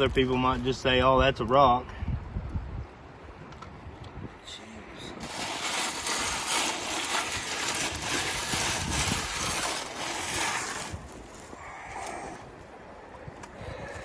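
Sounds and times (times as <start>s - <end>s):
gravel and water rattling in sifter: 5.2s - 12.4s.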